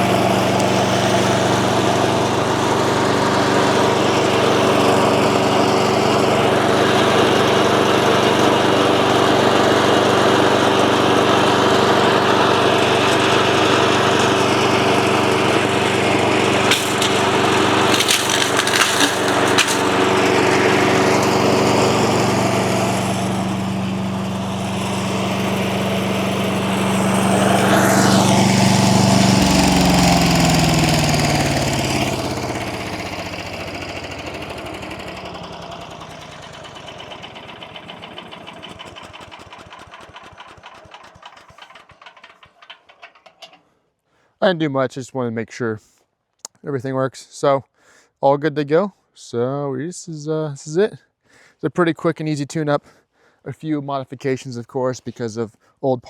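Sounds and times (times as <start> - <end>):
small engine running: 0.0 - 43.6
clatter of sharp knocks: 16.6 - 20.8, 35.9 - 43.7.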